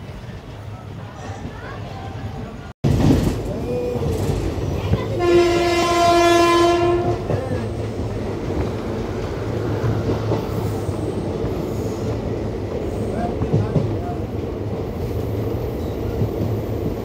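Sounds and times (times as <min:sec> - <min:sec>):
passenger train rumbling: 0:00.0 - 0:17.0
train horn: 0:05.2 - 0:07.4.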